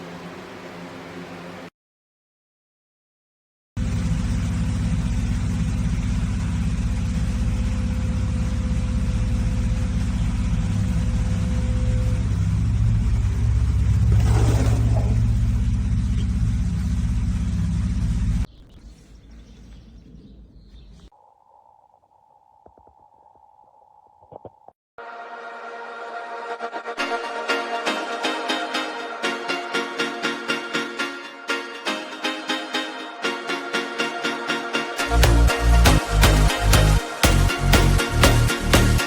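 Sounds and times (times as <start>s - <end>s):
low vehicle rumble: 3.8s - 21.1s.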